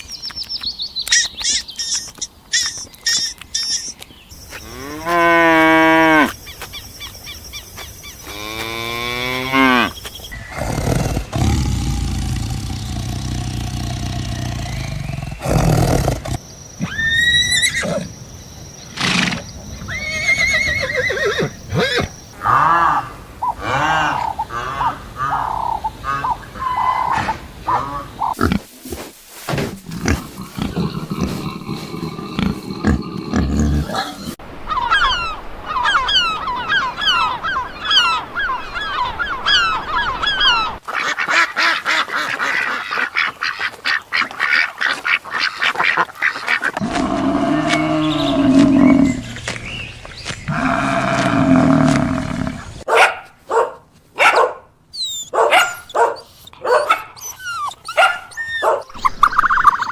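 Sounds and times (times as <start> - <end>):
goose or duck calls: 39.5 - 46.8.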